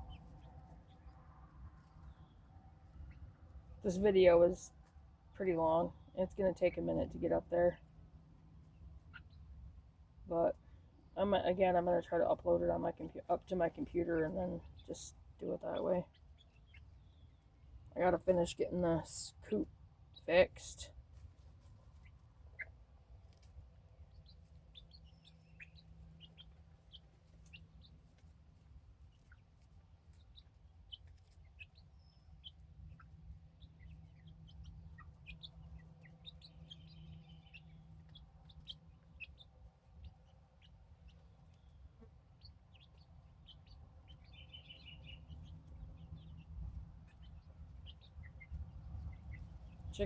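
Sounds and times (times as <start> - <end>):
chicks peeping: 0.0 - 50.0.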